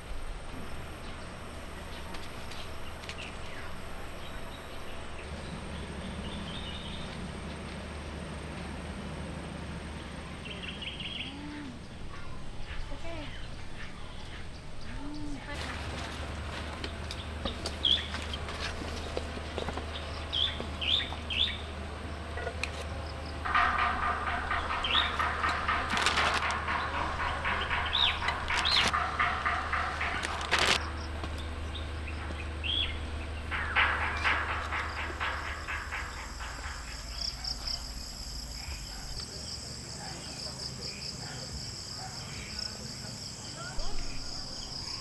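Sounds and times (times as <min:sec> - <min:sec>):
low hum: 0:00.0 - 0:39.3
birds chirping: 0:00.0 - 0:45.0
insect trill: 0:22.8 - 0:45.0.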